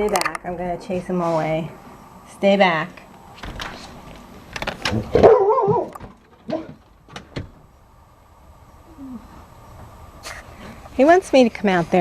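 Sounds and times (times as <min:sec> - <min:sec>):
sharp clicks and knocks: 0:03.4 - 0:07.6
dog whining bark: 0:05.1 - 0:06.8.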